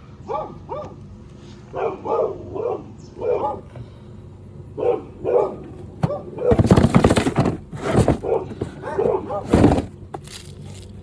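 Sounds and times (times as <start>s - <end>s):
dog barking: 0.2s - 1.0s, 1.7s - 3.7s, 4.8s - 6.6s, 8.1s - 9.6s
loud clatter: 6.0s - 10.3s.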